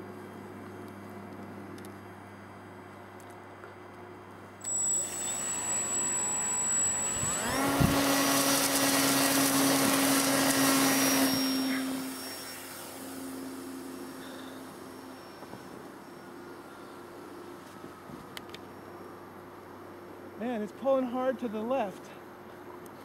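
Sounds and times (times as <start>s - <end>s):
model plane motor whining: 4.6s - 17.3s.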